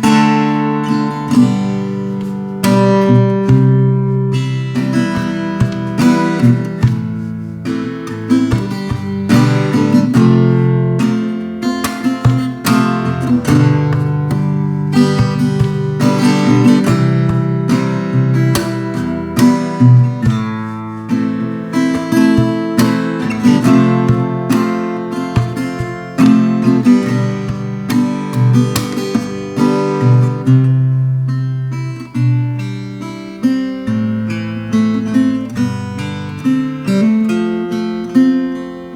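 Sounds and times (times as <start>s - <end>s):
acoustic guitar strummed and picked: 0.0s - 38.9s.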